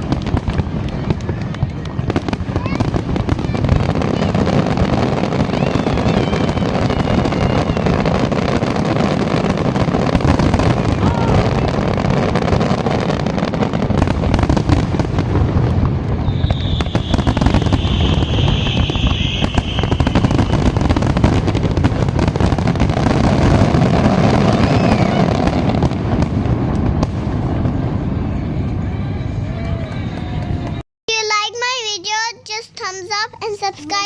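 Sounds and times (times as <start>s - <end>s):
fireworks bangs and crackles: 0.0s - 30.8s
high hissing whistle: 16.2s - 20.8s.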